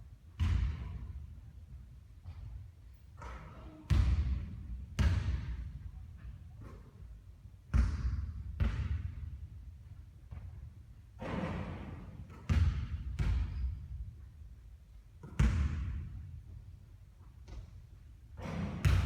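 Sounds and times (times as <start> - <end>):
basketball bouncing on hard surface: 0.4 - 1.0, 3.9 - 5.8, 7.7 - 9.3, 11.8 - 13.8, 15.2 - 16.3, 18.4 - 19.0.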